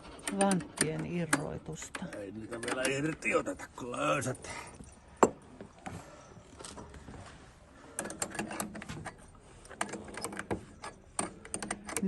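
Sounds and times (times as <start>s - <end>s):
light metallic clicks and rattles: 0.0s - 3.5s, 7.9s - 12.0s.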